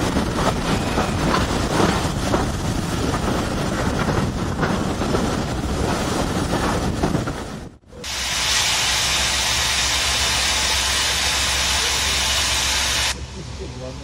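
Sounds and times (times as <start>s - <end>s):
train wheels rumbling with knocks: 0.0s - 7.8s
wind buffeting the microphone: 0.0s - 7.8s.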